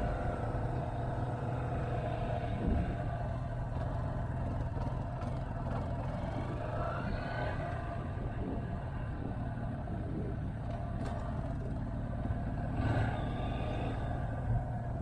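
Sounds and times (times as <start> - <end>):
motorcycle engine running: 0.0 - 6.9, 7.6 - 15.0
road noise: 0.0 - 15.0
wind noise: 7.4 - 10.5.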